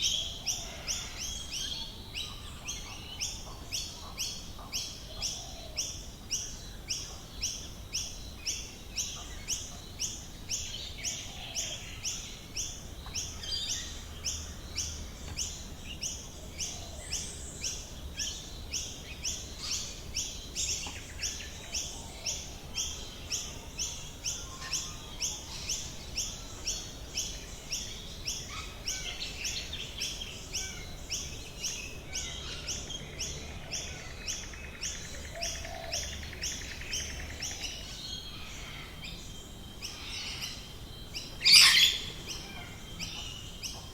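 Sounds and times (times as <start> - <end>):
regular pulsing bird call: 0.0 - 43.9
birds chirping and whistling: 24.3 - 43.9.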